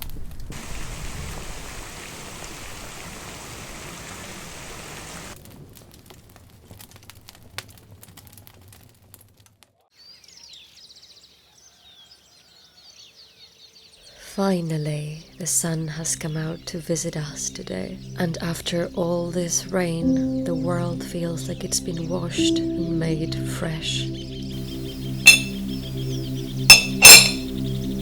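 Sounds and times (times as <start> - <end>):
heavy rain: 0.5 - 5.7
small birds chirping: 9.9 - 28.0
water dripping: 24.6 - 25.8.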